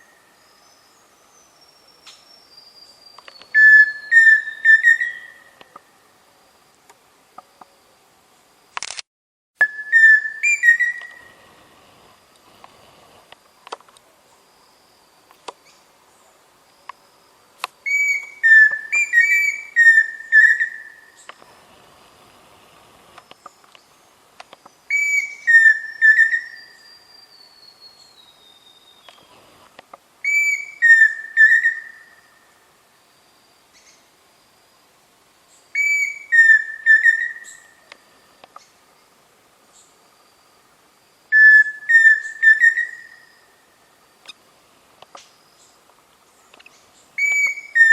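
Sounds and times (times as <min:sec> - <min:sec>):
bird whistled song: 0:00.0 - 0:05.6, 0:09.6 - 0:11.4, 0:17.8 - 0:21.3, 0:24.9 - 0:29.3, 0:30.2 - 0:32.4, 0:35.7 - 0:37.9, 0:41.3 - 0:43.6, 0:46.7 - 0:47.9.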